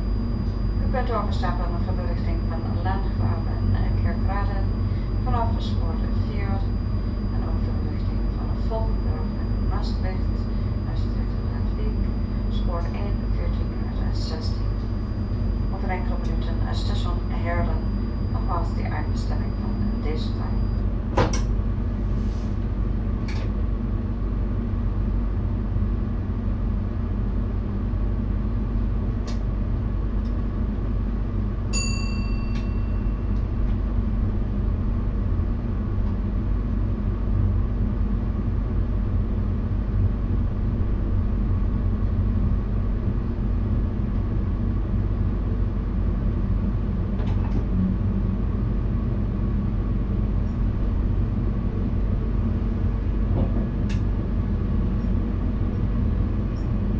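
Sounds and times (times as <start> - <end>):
electric train rumbling: 0.0 - 56.9
short ringing chime: 31.7 - 33.4.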